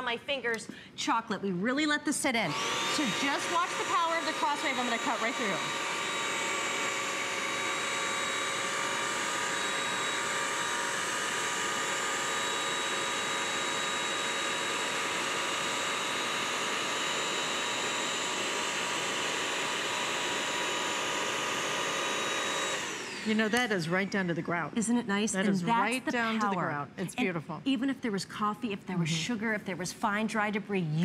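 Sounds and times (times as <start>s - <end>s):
vacuum cleaner motor whine: 2.5s - 24.2s.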